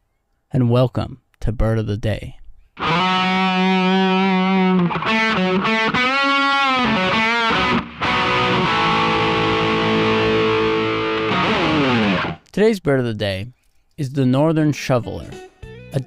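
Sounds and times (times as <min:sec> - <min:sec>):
distorted electric guitar music: 0:02.8 - 0:12.4.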